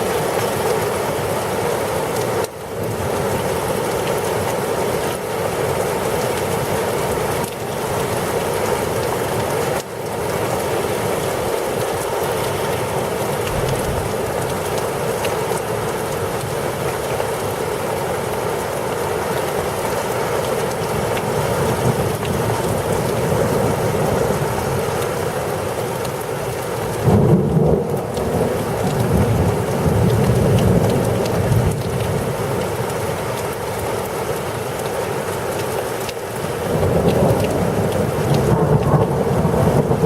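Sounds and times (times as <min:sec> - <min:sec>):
heavy rain pouring: 0:00.0 - 0:40.0
thunder rumbling: 0:13.5 - 0:14.5, 0:36.7 - 0:40.0.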